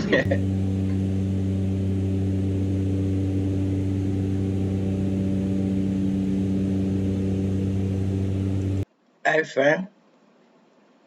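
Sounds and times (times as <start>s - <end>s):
aircraft engines droning in cabin: 0.0s - 8.8s.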